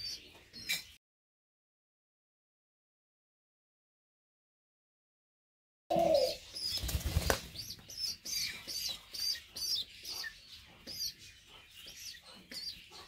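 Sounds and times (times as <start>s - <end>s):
small birds chirping: 0.0s - 1.0s, 5.9s - 13.0s.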